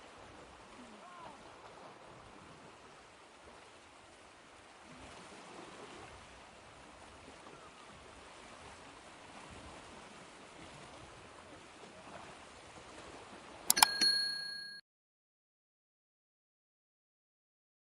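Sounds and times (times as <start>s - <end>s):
ocean waves surf hiss: 0.0s - 13.5s.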